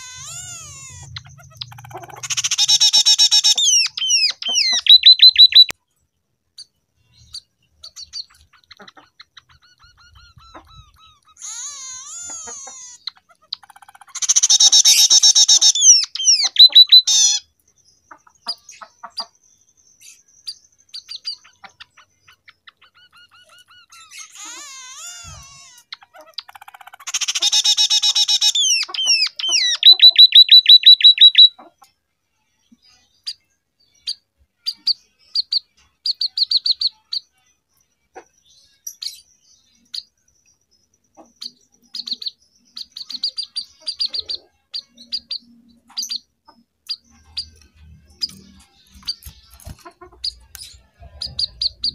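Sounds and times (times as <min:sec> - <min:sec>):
bird chattering song: 0:00.0 - 0:32.0, 0:32.6 - 0:51.9
bird chips: 0:46.9 - 0:51.9.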